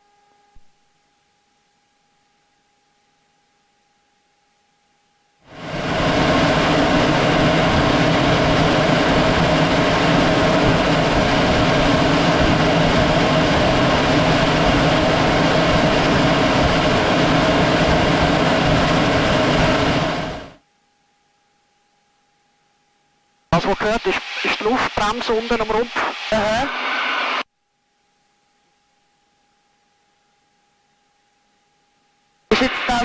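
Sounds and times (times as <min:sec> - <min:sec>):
aircraft roar of rushing air: 0:05.5 - 0:20.6.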